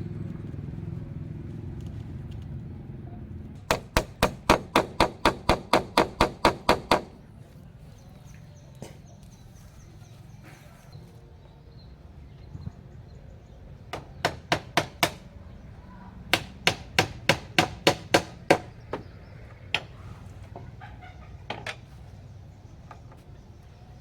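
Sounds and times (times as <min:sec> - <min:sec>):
sharp chopping strikes: 0:03.6 - 0:07.2.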